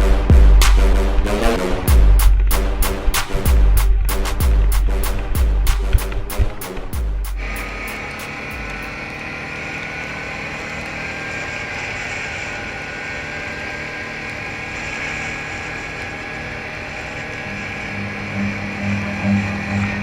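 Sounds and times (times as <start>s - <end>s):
motorcycle engine at speed: 0.1s - 20.0s
low pulsing sound: 7.0s - 9.1s, 15.8s - 20.0s.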